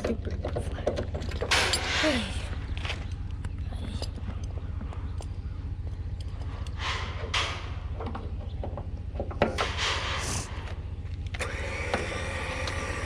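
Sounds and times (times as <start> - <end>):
low hum: 0.0 - 13.0
mower scraping and rattling: 6.4 - 13.0
winch motor whine: 11.2 - 13.0.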